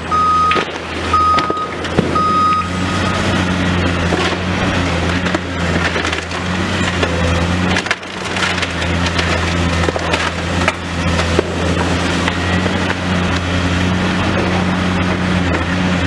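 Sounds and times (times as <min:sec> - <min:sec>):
debris crunching and breaking: 0:00.0 - 0:16.0
excavator diesel engine running: 0:00.0 - 0:16.0
cracks of splintering material: 0:05.1 - 0:13.5.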